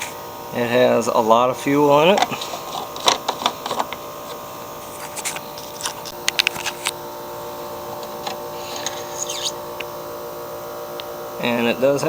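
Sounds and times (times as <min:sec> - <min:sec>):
steady hum: 0:00.0 - 0:12.0
clicks and knocks of handling caps: 0:02.1 - 0:07.0, 0:07.9 - 0:09.9.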